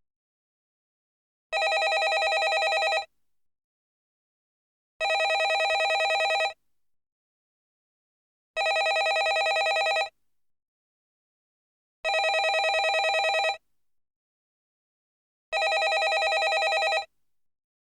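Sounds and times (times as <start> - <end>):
telephone bell ringing: 1.6 - 3.1, 5.0 - 6.6, 8.6 - 10.1, 12.1 - 13.6, 15.6 - 17.1.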